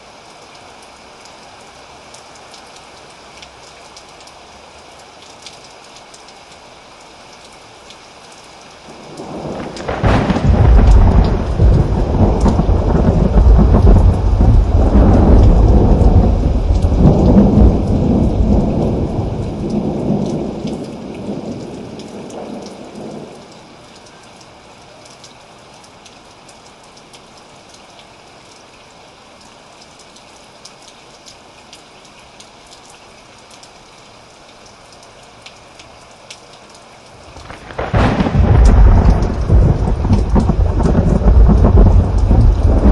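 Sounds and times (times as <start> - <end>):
steady rain: 0.0 - 42.9
thunder rolling: 9.2 - 20.5, 37.4 - 42.9.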